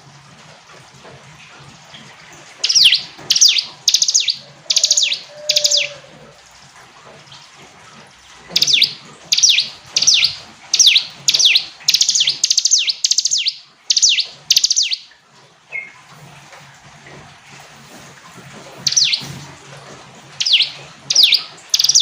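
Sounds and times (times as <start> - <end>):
bird singing high descending notes: 2.6 - 6.1, 8.6 - 15.1, 18.8 - 19.2, 20.4 - 22.0.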